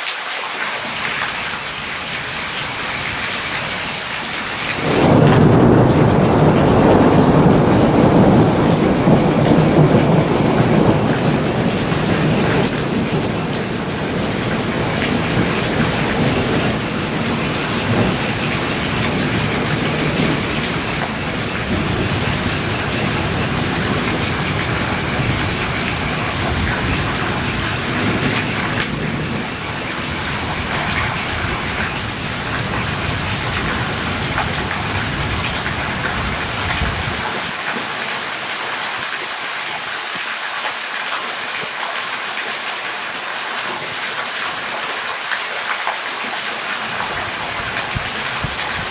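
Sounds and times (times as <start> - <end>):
heavy rain pouring: 0.0 - 48.9
low rumble of thunder: 1.3 - 37.5, 46.9 - 48.9.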